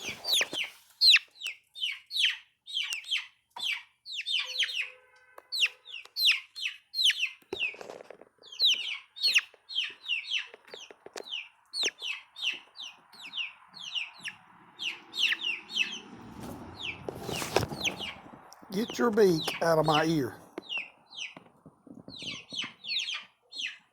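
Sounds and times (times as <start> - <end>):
chicks peeping: 0.0 - 23.9
loud rustle: 16.3 - 18.3.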